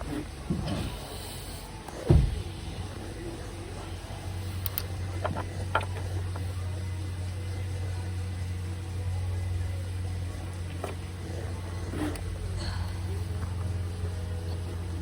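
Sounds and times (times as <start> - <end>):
steady low hum: 0.0 - 15.0
light handling clicks: 4.3 - 6.5.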